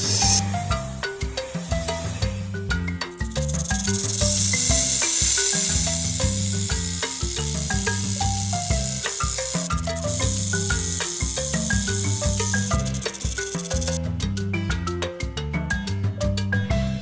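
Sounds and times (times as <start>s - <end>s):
background music with bass line: 0.0s - 17.0s
snake hissing: 3.6s - 14.0s.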